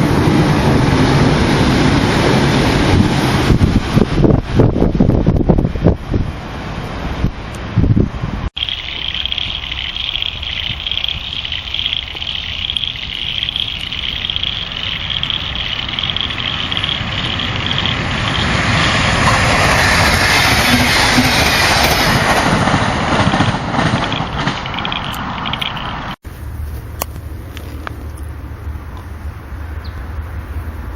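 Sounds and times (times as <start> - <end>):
train passing: 0.0 - 30.9
steady high hiss: 8.6 - 21.7.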